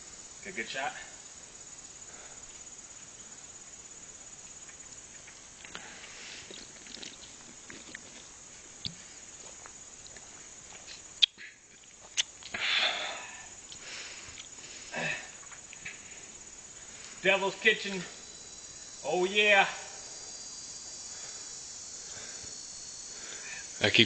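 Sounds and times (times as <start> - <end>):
crickets droning: 0.0 - 24.0
breathy noise near microphone: 12.5 - 17.4.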